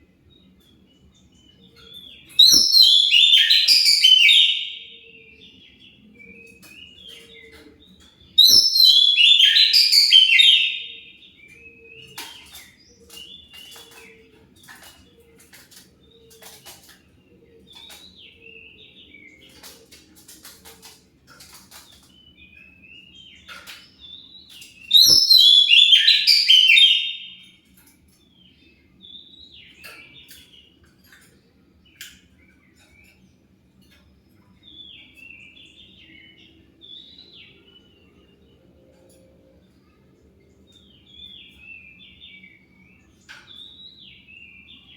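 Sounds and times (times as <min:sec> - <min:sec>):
bird singing rapid chirps: 0:00.7 - 0:14.8, 0:22.0 - 0:27.6
bird chirps and whistles: 0:02.4 - 0:04.9, 0:08.4 - 0:11.1, 0:24.9 - 0:27.4.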